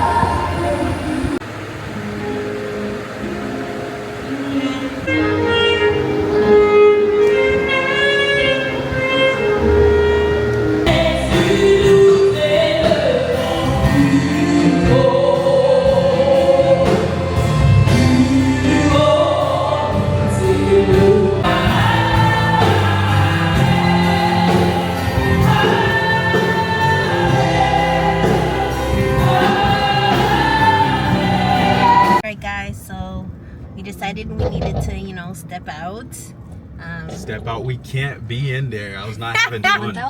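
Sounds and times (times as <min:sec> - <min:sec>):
choir singing gospel music: 0:00.0 - 0:01.8, 0:06.3 - 0:32.2.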